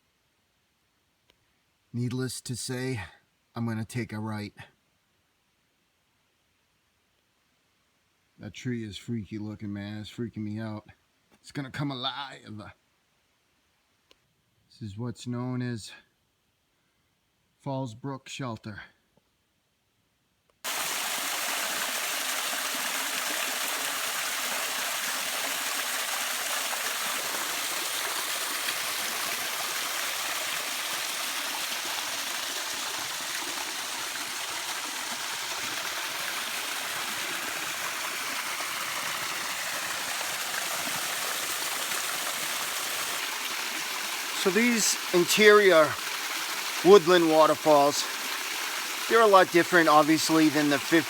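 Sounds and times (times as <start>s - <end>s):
brook and small waterfall rushing: 20.7s - 51.0s.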